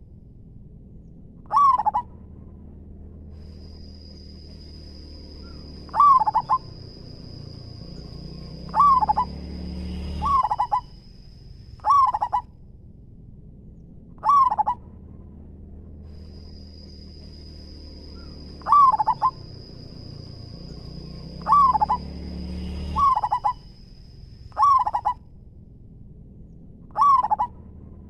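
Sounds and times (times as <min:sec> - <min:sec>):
dove cooing: 0:01.5 - 0:02.1, 0:05.4 - 0:11.0, 0:11.8 - 0:12.5, 0:14.2 - 0:14.8, 0:18.2 - 0:22.2, 0:22.8 - 0:23.7, 0:24.6 - 0:25.2, 0:26.9 - 0:27.6.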